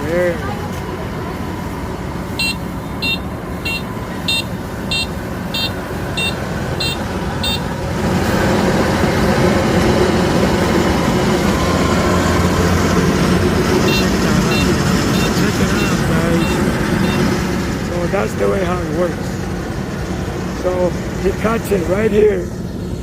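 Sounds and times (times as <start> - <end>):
harvester engine drone: 0.0 - 23.0
high electronic warning beeps: 2.4 - 7.7, 13.8 - 17.4.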